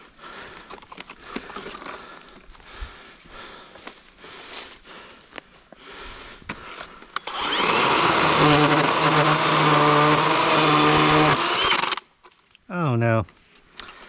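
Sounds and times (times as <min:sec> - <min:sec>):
electric chainsaw cutting log: 0:07.2 - 0:12.1.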